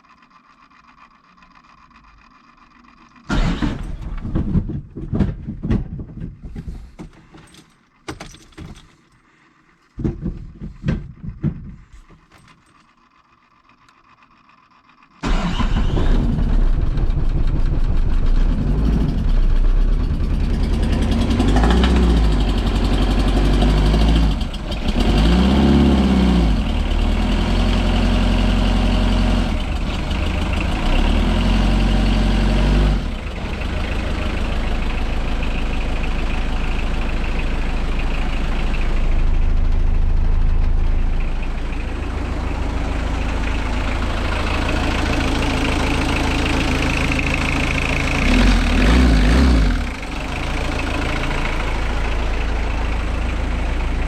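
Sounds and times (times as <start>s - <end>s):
diesel engine revving and idling: 3.3s - 4.7s, 15.2s - 54.0s.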